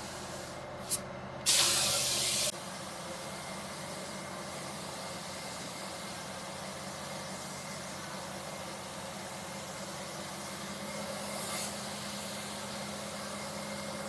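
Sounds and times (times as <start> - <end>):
compressed air hissing: 0.0 - 8.0, 8.7 - 13.4.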